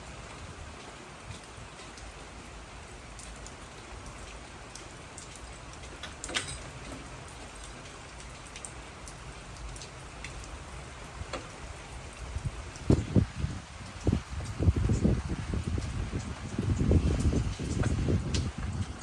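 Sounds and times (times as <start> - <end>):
steady rain falling: 0.0 - 19.0
drip ticks: 3.1 - 6.3, 7.6 - 13.0.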